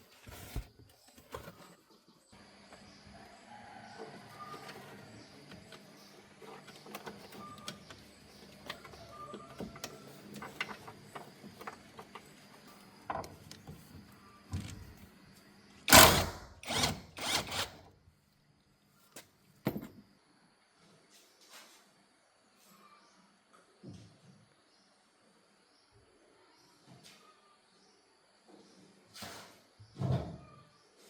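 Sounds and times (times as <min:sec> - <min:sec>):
tools and parts being handled: 0:00.0 - 0:01.9.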